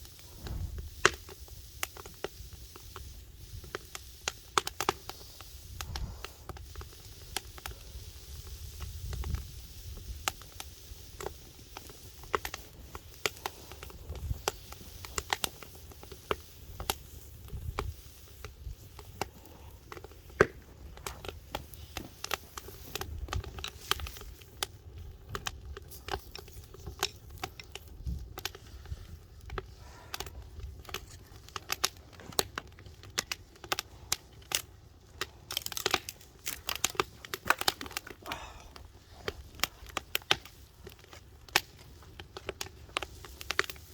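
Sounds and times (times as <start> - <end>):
wood fire crackling: 0.0 - 43.9.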